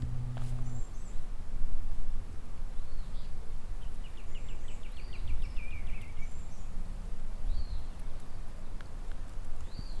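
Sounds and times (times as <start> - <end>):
songbird call: 0.0 - 1.3, 2.8 - 6.8, 9.6 - 10.0
wind rumble on microphone: 0.0 - 10.0.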